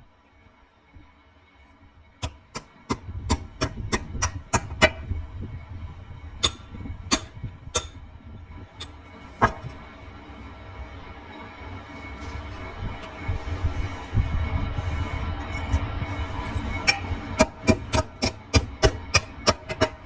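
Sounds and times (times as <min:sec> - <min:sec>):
low rumble: 0:01.9 - 0:20.0
hammer striking metal: 0:06.4 - 0:08.0, 0:16.8 - 0:20.0.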